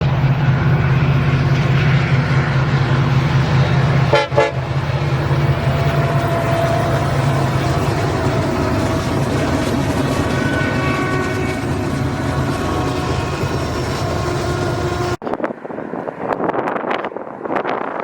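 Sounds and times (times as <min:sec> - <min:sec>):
diesel locomotive engine running: 0:00.0 - 0:16.8
locomotive horn toot: 0:03.9 - 0:04.8, 0:05.5 - 0:15.2.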